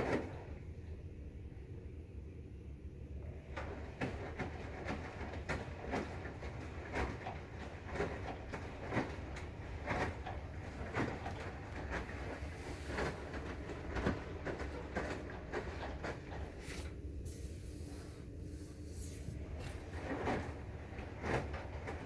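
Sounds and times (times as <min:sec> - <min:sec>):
washing machine hum: 0:00.0 - 0:22.0
washing machine knocks and clicks: 0:03.5 - 0:16.6.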